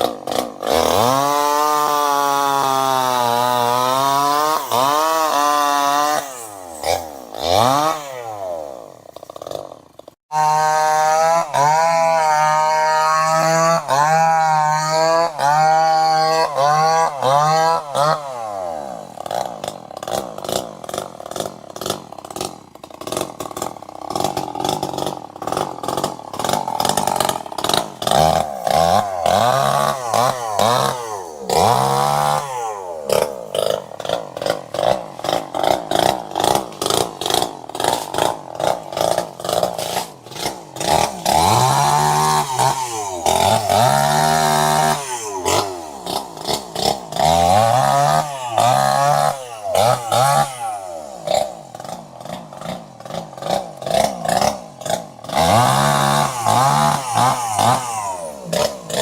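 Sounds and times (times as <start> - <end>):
chainsaw engine throttling: 0.0 - 59.0.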